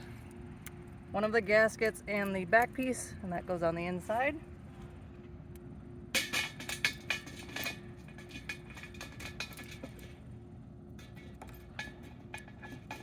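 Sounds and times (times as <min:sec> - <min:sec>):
small parts clinking on metal pot: 0:06.2 - 0:10.2, 0:11.0 - 0:13.0.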